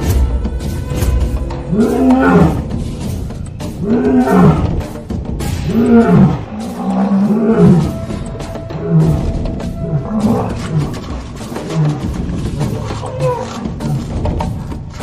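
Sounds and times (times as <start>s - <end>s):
music: 0.0s - 15.0s
lion roaring: 1.7s - 2.7s, 3.8s - 4.9s, 5.6s - 15.0s.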